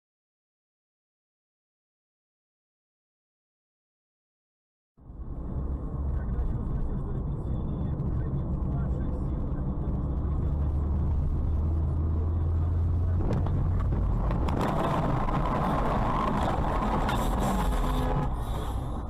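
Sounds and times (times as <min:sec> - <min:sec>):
car engine and road rumble: 0:05.0 - 0:19.0.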